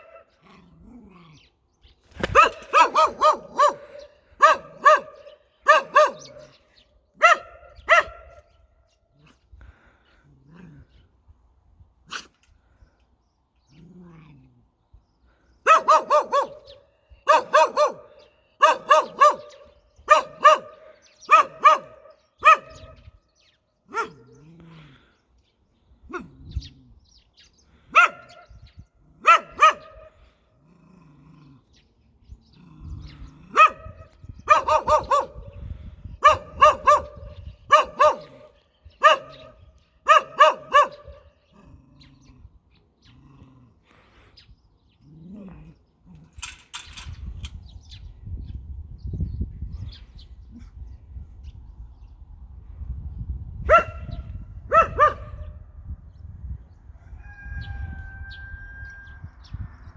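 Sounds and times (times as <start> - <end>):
dog barking aggressively: 2.2 - 6.6, 7.2 - 8.4, 15.6 - 23.0, 23.9 - 24.3, 27.9 - 28.4, 29.2 - 30.1, 33.4 - 35.6, 36.2 - 41.3, 53.7 - 55.5.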